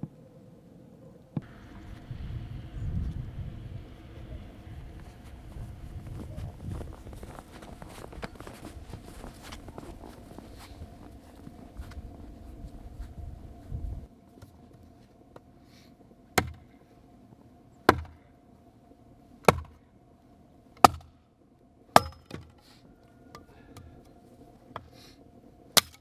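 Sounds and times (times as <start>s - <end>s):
axe chopping wood: 16.4s - 16.7s, 17.9s - 18.2s, 19.5s - 19.8s, 20.8s - 21.1s, 22.0s - 22.6s, 25.8s - 26.0s.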